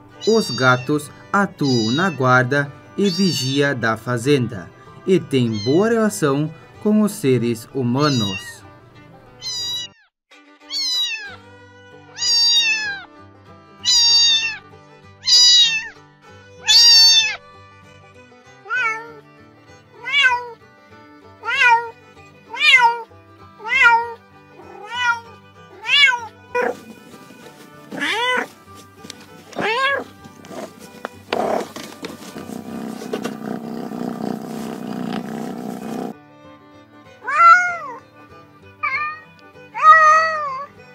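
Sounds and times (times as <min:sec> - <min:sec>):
quiet background music: 0:00.0 - 0:09.9, 0:10.5 - 0:40.9
cat meowing: 0:01.6 - 0:02.3, 0:03.1 - 0:03.6, 0:05.5 - 0:05.8, 0:08.1 - 0:08.6, 0:09.4 - 0:10.1, 0:10.7 - 0:11.4, 0:12.1 - 0:13.1, 0:13.8 - 0:14.6, 0:15.2 - 0:16.0, 0:16.6 - 0:17.4, 0:18.7 - 0:19.2, 0:20.0 - 0:20.6, 0:21.4 - 0:21.9, 0:22.5 - 0:26.8, 0:28.0 - 0:28.5, 0:29.6 - 0:30.7, 0:37.2 - 0:38.0, 0:38.8 - 0:40.7.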